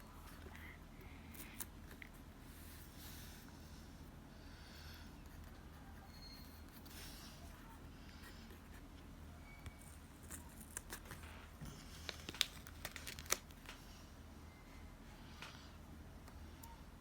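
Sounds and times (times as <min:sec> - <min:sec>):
paper crinkling and rustling: 0:09.7 - 0:14.0.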